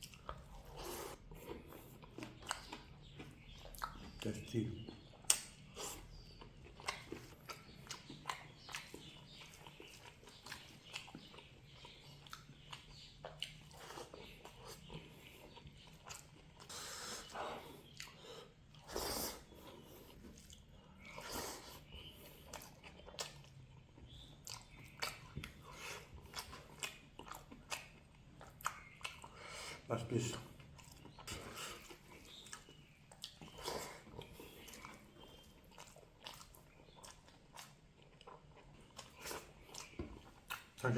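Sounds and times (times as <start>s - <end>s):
chewing and biting food: 0.0s - 40.9s
wet mouth clicks: 3.7s - 4.2s, 5.2s - 9.7s.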